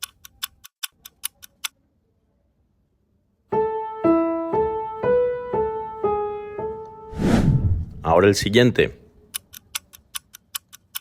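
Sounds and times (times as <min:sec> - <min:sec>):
slow piano melody: 0:03.5 - 0:07.1.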